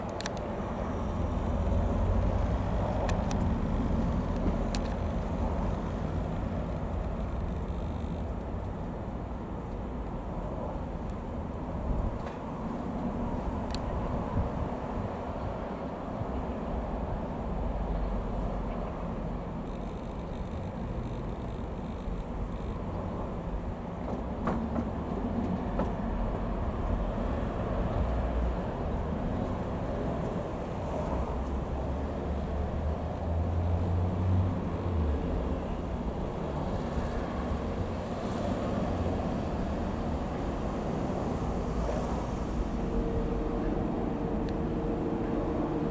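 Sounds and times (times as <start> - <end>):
faint ticks: 5.7 - 8.9, 19.6 - 23.0.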